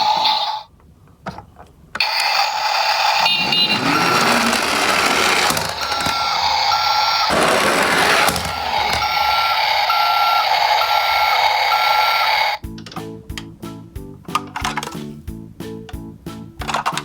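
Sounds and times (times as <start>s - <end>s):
truck reversing beeps: 3.0s - 7.3s, 8.7s - 12.4s.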